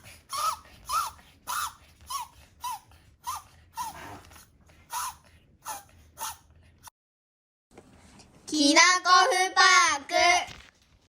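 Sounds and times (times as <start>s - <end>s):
puppy whimpering: 0.3s - 6.5s.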